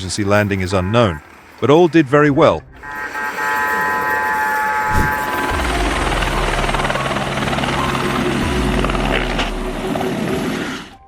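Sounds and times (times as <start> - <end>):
low engine rumble: 2.6 - 11.0
aircraft engine high whine: 2.7 - 11.0.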